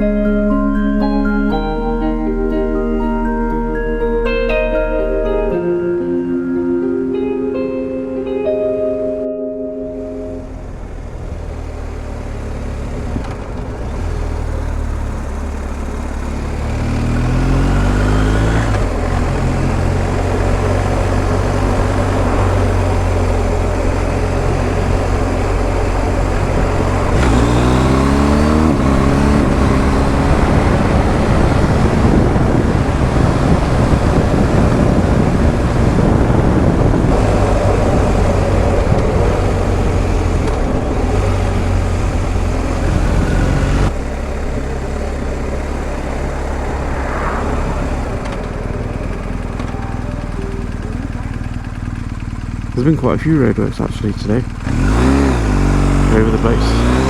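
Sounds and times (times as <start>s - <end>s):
motorcycle engine accelerating: 0.0s - 7.4s, 9.9s - 57.0s
wind rush on microphone: 17.1s - 44.0s.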